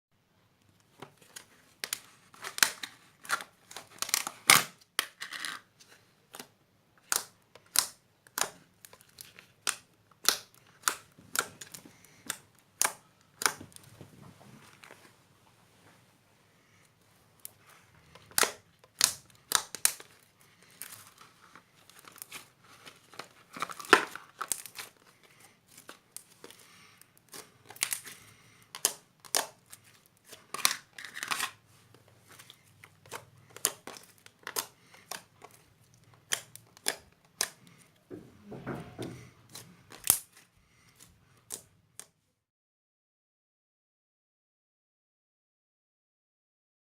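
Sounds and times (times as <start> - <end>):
slime squishing with sticky pops: 7.0 - 13.9, 17.4 - 31.4, 32.3 - 38.0.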